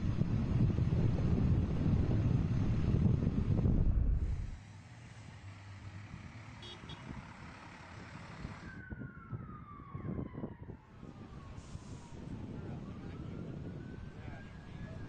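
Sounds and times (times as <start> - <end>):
traffic rumble: 0.0 - 15.0
siren falling in pitch: 8.6 - 11.4.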